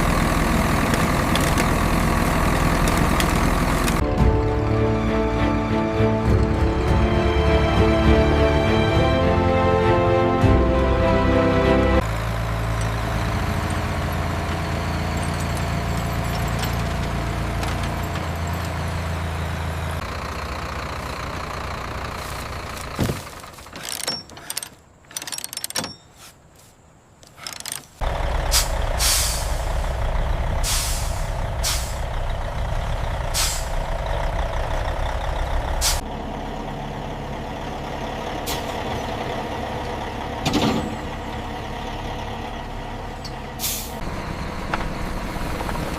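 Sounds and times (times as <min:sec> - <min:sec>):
diesel engine running: 0:00.0 - 0:24.7, 0:28.0 - 0:45.9
sharp air hisses: 0:28.5 - 0:29.8, 0:30.6 - 0:32.0, 0:33.4 - 0:33.7.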